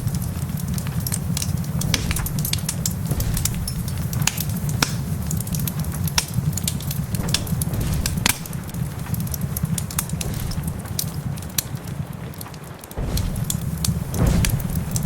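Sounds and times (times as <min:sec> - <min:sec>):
low rumble: 0:00.0 - 0:06.0, 0:06.7 - 0:12.3, 0:13.0 - 0:15.0
sharp pops and snaps: 0:00.0 - 0:15.0
wood fire crackling: 0:00.0 - 0:15.0.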